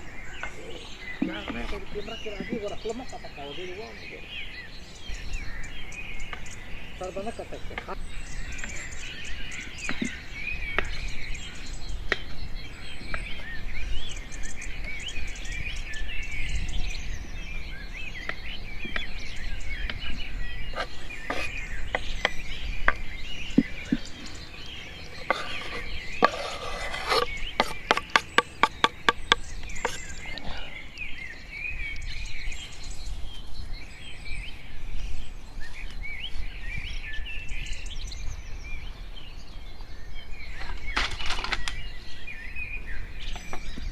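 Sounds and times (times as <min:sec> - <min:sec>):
small birds chirping: 0:00.0 - 0:43.9
scattered knocks: 0:27.2 - 0:30.0.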